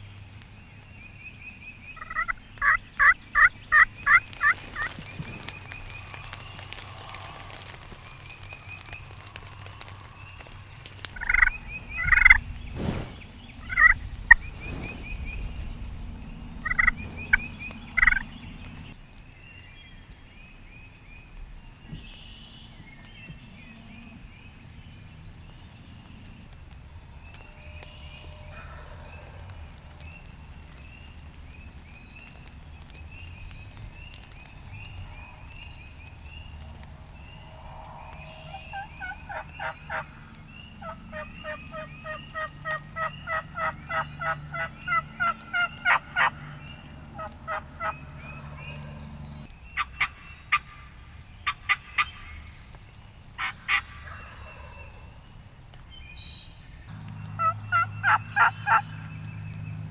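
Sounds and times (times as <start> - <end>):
faint small birds chirping: 0.0 - 59.9
turkey calling: 2.0 - 14.5, 16.6 - 18.9, 38.2 - 52.3, 53.4 - 55.0, 56.9 - 59.5.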